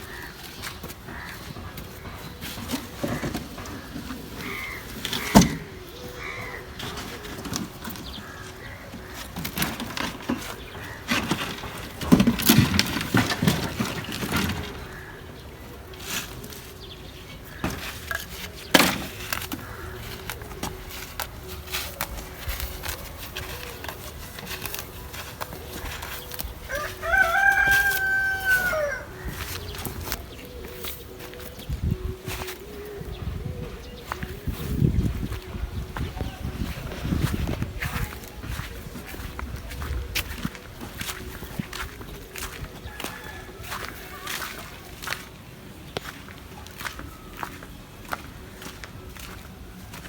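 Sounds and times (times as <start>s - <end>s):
knocks and clattering: 9.2s - 15.0s.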